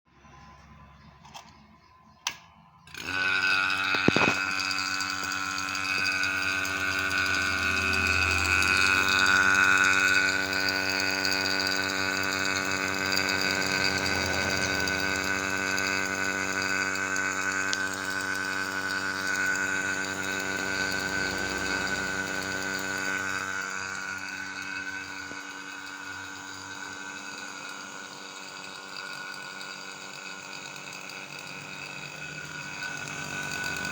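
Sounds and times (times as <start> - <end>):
vacuum pump humming: 0.1 - 33.9
small clicks: 1.2 - 7.4.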